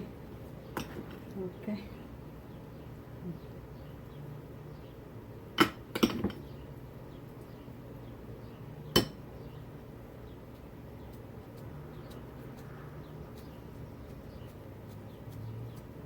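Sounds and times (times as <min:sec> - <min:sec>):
steady low hum: 0:00.0 - 0:16.0
kitchenware clinking: 0:05.6 - 0:06.4.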